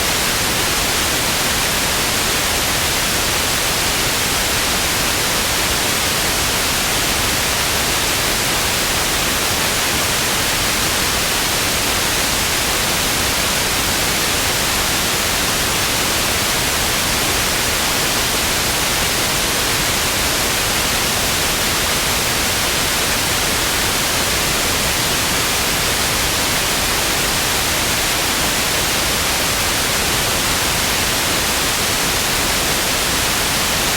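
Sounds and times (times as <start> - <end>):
television static hiss: 0.0 - 33.9.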